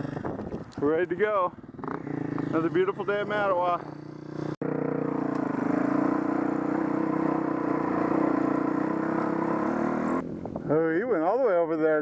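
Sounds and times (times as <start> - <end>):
dirt bike engine running: 1.5 - 10.4.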